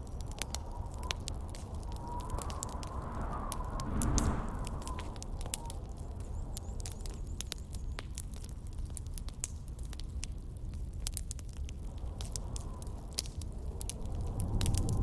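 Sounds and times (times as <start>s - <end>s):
campfire crackling and popping: 0.0s - 15.0s
low steady rumble: 1.6s - 5.2s.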